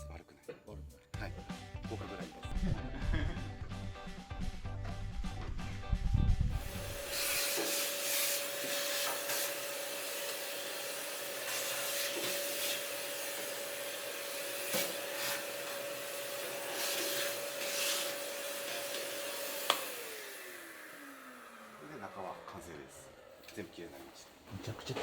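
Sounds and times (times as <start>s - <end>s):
brush scrubbing stove: 6.6s - 20.1s
vacuum cleaner whine: 6.6s - 25.0s.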